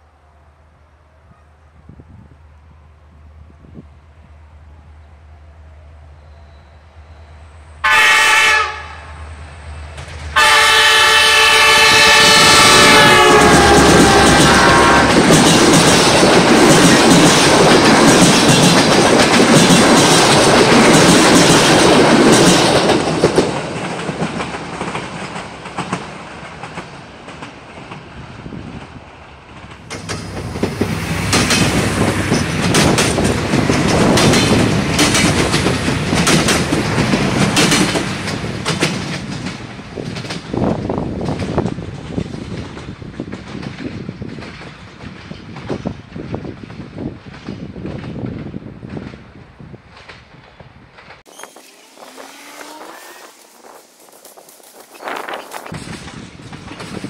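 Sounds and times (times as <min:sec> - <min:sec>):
train rolling past: 0:00.0 - 0:57.0
train horn blast: 0:06.2 - 0:09.3, 0:10.3 - 0:15.2, 0:51.9 - 0:53.5
wheels clattering over rail joints: 0:29.6 - 0:45.8.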